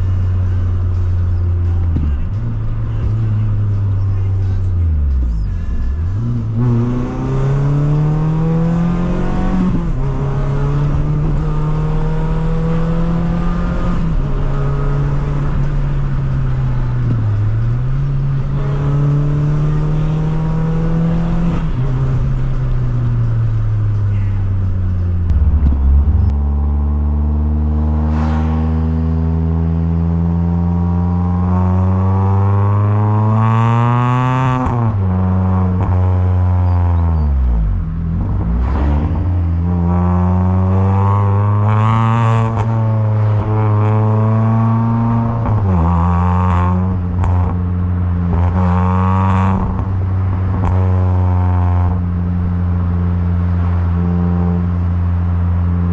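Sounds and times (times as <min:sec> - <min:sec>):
car engine pulling through gears: 0:00.0 - 0:55.9.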